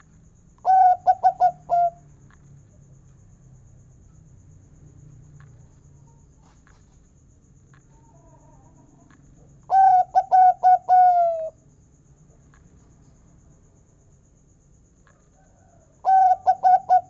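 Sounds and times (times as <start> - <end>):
dove cooing: 0.6 - 2.0, 9.7 - 11.6, 15.6 - 17.0.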